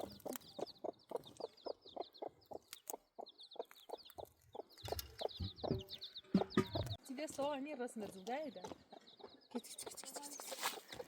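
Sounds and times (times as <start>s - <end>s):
chicken clucking: 0.0s - 7.0s.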